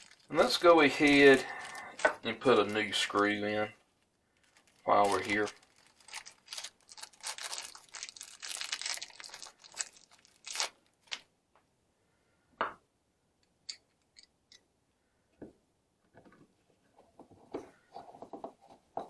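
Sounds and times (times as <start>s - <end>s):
plastic bag crinkling and tearing: 0.0s - 3.7s, 4.4s - 11.2s
small parts clicking: 13.4s - 14.6s.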